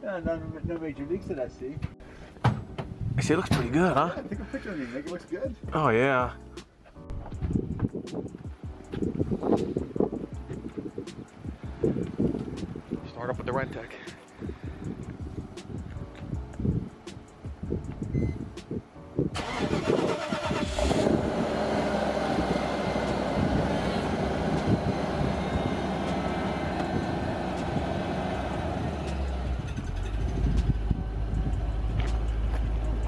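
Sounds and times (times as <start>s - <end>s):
car engine starting and idling: 19.3s - 33.0s.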